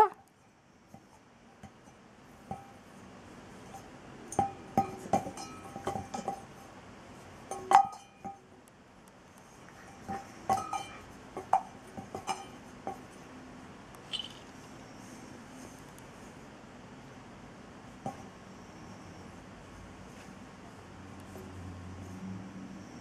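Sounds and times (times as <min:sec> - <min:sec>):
loud tableware strike: 0:14.1 - 0:14.5
tableware clinking: 0:14.1 - 0:14.6.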